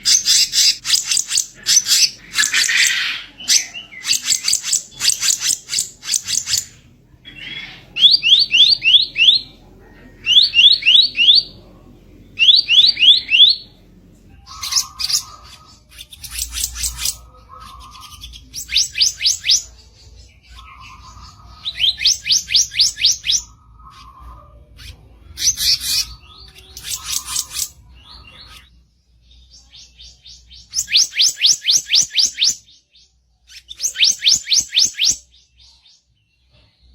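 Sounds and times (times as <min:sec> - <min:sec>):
bird harsh chattering: 0:00.0 - 0:09.4, 0:14.4 - 0:19.8, 0:20.4 - 0:28.7.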